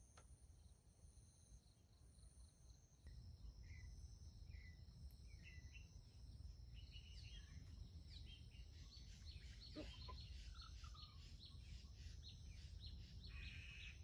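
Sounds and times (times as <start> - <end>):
insects trilling: 0.6 - 14.0
bird chirps: 3.6 - 6.0, 6.7 - 14.0.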